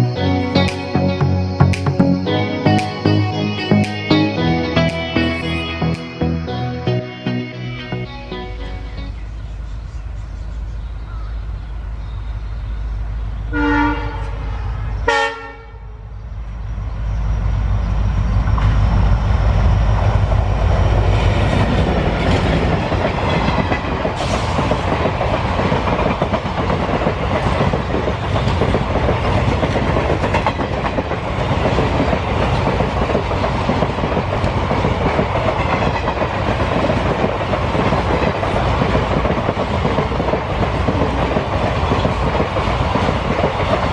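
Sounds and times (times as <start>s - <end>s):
locomotive horn blasts: 13.4s - 16.0s.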